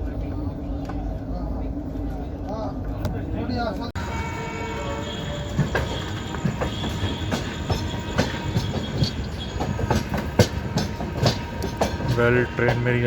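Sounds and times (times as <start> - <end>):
train rumbling on rails: 0.0 - 13.0
wheels clacking over track: 4.0 - 13.0.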